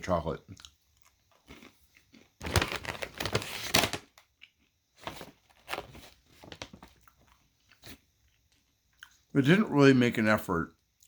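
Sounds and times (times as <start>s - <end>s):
plastic snack bag crinkling: 1.3s - 8.0s.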